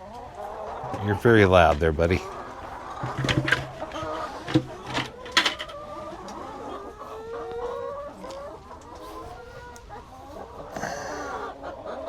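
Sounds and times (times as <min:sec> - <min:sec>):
chickens clucking: 0:00.0 - 0:12.0
sharp knocks: 0:03.0 - 0:05.7.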